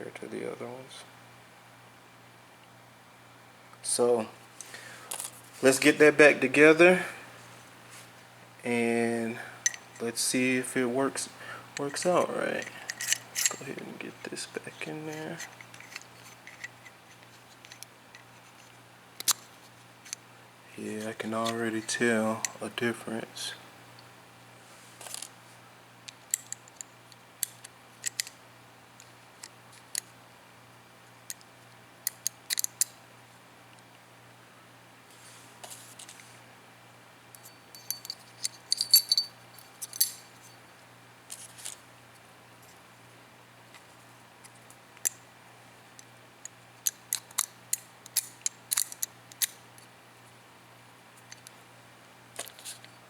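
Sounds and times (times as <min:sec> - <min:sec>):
metallic clicks of gun parts: 0:26.1 - 0:28.4, 0:31.3 - 0:33.0, 0:37.4 - 0:40.2, 0:44.5 - 0:45.2, 0:46.0 - 0:49.9.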